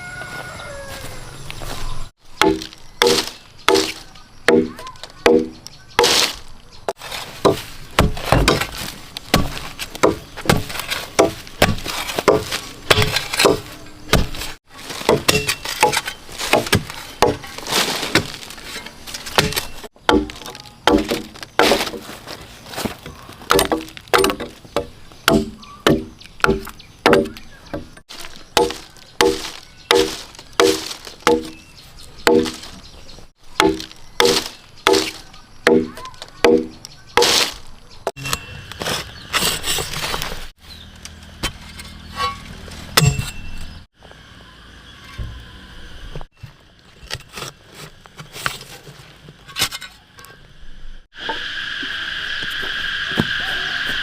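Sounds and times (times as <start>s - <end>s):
hand tool striking wood: 2.4s - 6.4s, 7.4s - 18.4s, 19.3s - 22.0s, 23.5s - 31.6s, 32.2s - 32.7s, 33.6s - 39.6s.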